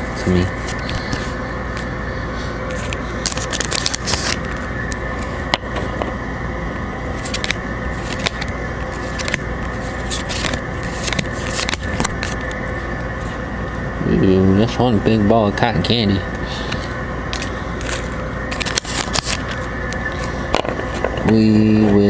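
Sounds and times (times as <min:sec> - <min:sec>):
cards being flipped through: 0:00.0 - 0:01.9, 0:02.7 - 0:06.1, 0:07.0 - 0:13.4, 0:16.6 - 0:21.4
steady background hum: 0:00.0 - 0:22.0.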